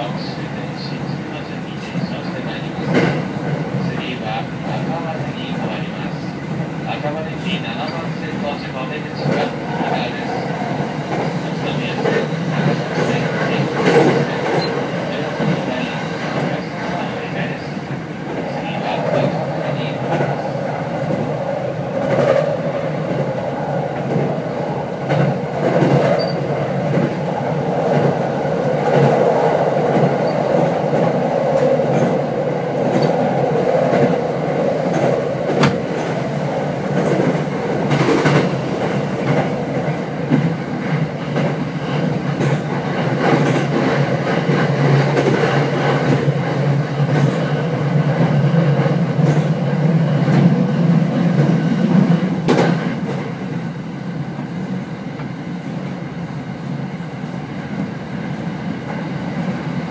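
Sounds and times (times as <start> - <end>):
train wheels rumbling on rail: 0.0 - 59.9
clacks over rail joints: 2.8 - 3.9, 11.1 - 17.1, 36.9 - 49.6.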